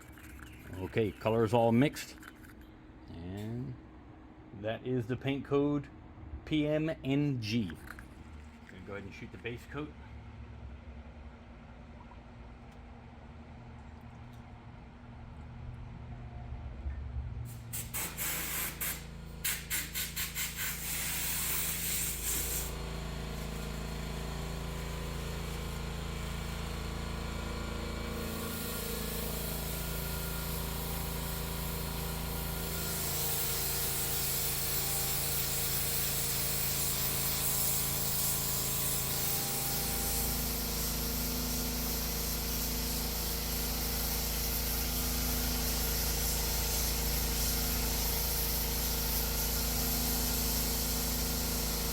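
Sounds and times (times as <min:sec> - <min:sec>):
paint spray gun hissing: 0:17.5 - 0:51.9.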